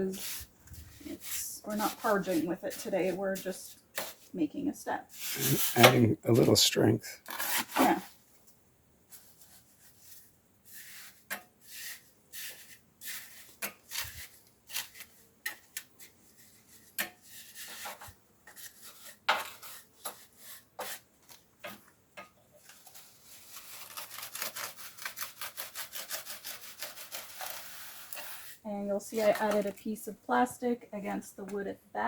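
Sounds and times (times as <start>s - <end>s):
trowel scraping mortar: 5.2s - 6.6s, 7.2s - 8.0s, 10.6s - 21.1s, 22.7s - 29.7s.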